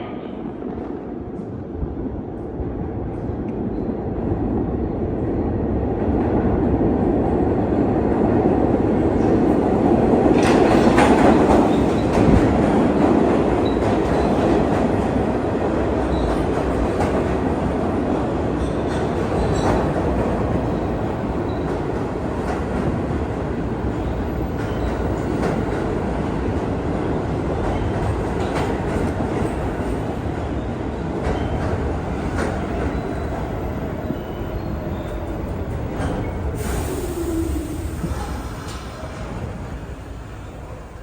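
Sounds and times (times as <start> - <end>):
subway train running on track: 0.0 - 41.0.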